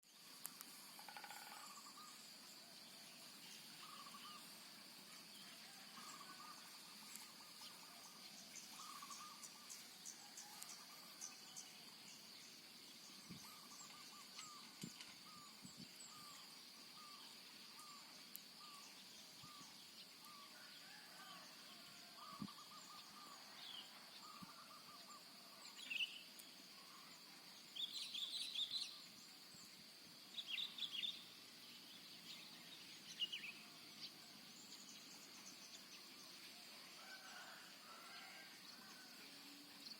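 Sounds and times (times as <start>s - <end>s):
high insect drone: 0.1s - 39.9s
birds chirping: 0.2s - 39.1s
short bird calls: 6.0s - 9.7s.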